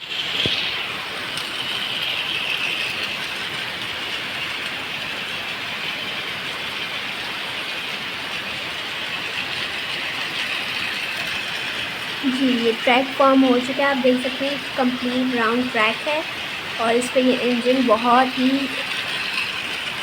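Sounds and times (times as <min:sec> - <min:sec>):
toy train running on track: 0:00.0 - 0:20.0.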